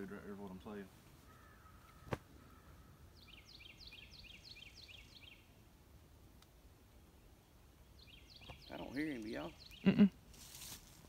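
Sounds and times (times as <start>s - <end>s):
bird chirping: 1.3s - 5.6s, 7.2s - 10.2s.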